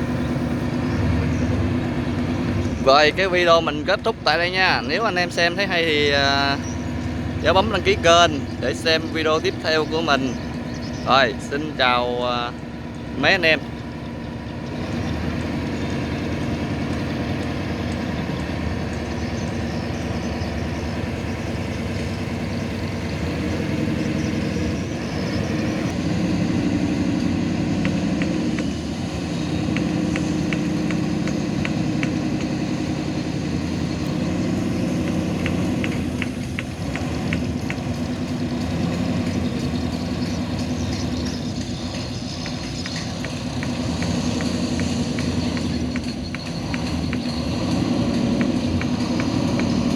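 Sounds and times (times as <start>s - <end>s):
boat engine running: 0.0s - 49.9s.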